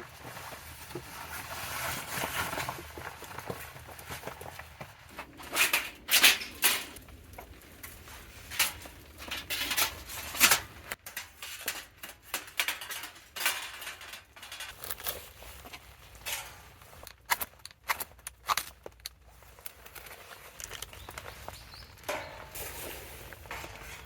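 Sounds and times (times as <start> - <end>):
metal utensils and dishware clinking: 5.2 - 7.0, 7.8 - 15.3, 16.2 - 16.8, 20.6 - 24.0.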